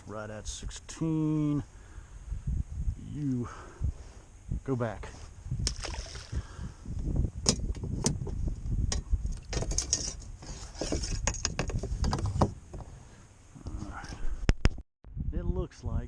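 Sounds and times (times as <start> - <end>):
gear clattering in plastic kayak: 9.0 - 12.6.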